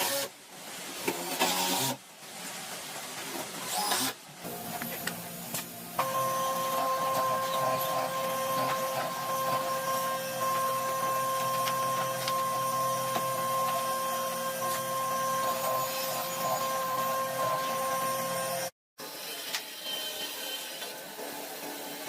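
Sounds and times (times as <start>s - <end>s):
power tool motor whining: 6.0s - 18.8s.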